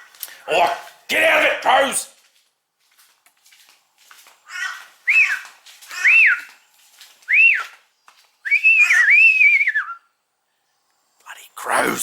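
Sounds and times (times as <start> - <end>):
high whistled notes: 7.3 - 7.7, 8.4 - 10.1
long wavering whistle: 7.3 - 7.7, 8.4 - 10.2.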